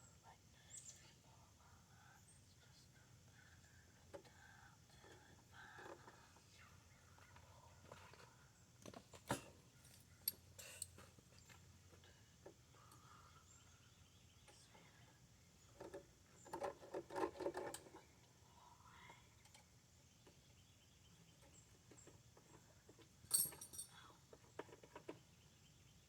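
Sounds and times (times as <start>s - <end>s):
metal tools clinking and rattling: 23.3s - 23.9s.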